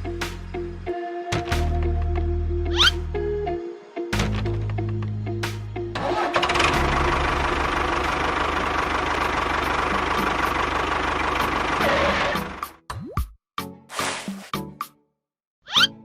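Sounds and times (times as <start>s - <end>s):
engine running with knocking pulse: 6.0s - 12.8s.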